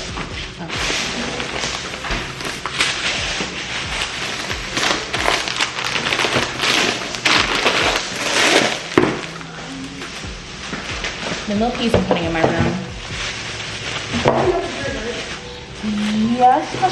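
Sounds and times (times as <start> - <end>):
grocery bags rustling and crinkling: 0.0 - 16.9.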